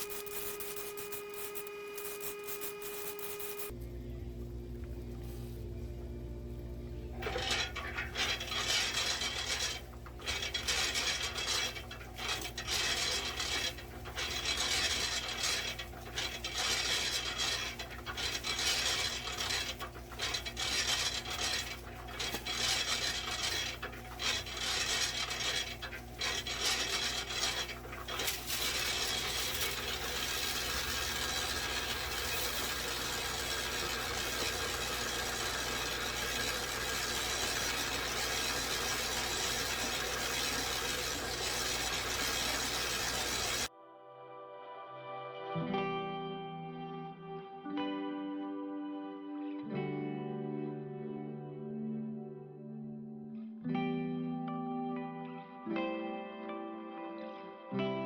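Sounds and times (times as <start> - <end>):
cement mixer churning: 0.0 - 3.7, 7.2 - 43.7
motor hum: 0.0 - 43.7.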